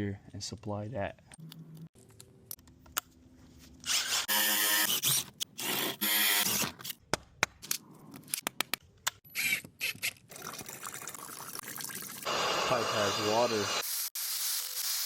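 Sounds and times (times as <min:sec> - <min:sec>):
handheld power tool running: 0:12.2 - 0:15.0.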